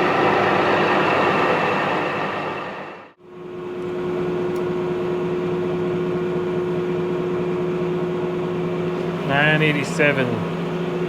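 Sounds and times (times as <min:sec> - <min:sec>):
machine humming: 0:07.4 - 0:11.0.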